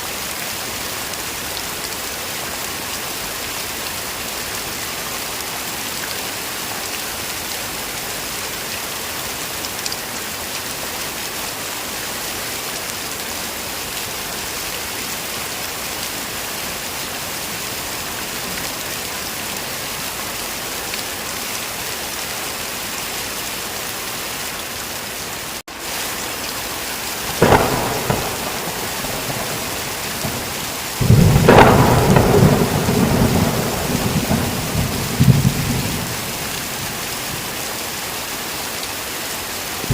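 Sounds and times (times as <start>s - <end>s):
heavy rain: 0.0s - 39.9s
thunder: 27.3s - 36.9s.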